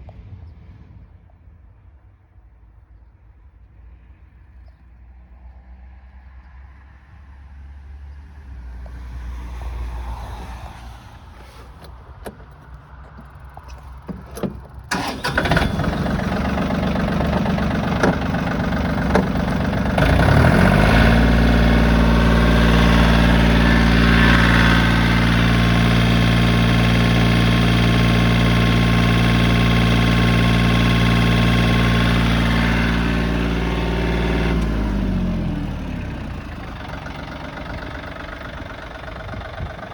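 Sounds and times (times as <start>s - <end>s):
diesel engine starting and idling: 8.9s - 39.9s
clicks: 11.4s - 20.3s.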